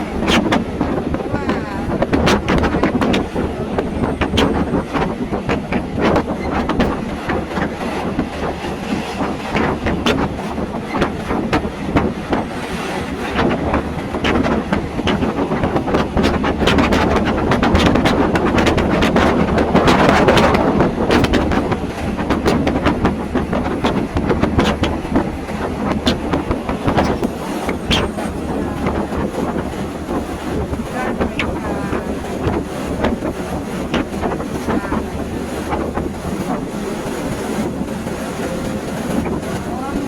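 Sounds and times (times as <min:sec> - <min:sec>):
train rumble: 0:00.0 - 0:40.0
train wheels clattering on rail joints: 0:00.0 - 0:40.0.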